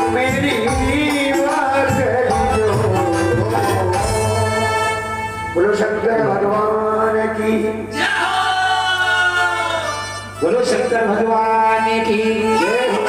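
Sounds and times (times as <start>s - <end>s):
person singing folk song: 0.0s - 4.9s
instrumental accompaniment: 0.0s - 13.0s.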